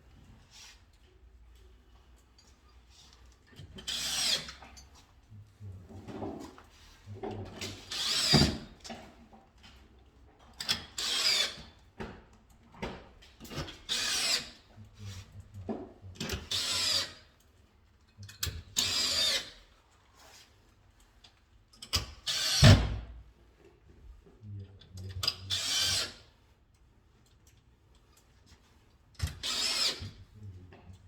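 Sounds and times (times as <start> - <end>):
cordless drill driving screws: 7.9 - 8.6, 16.4 - 17.2, 18.8 - 19.5, 22.3 - 22.8, 29.2 - 30.1.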